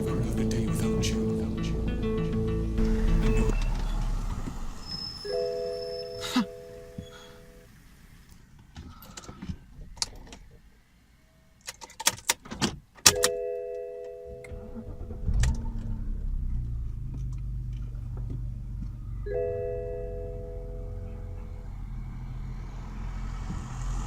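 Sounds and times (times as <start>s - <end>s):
car engine starting and idling: 0.0s - 10.4s, 13.1s - 24.0s
multi-tone warning chime: 4.8s - 7.7s, 19.3s - 21.2s.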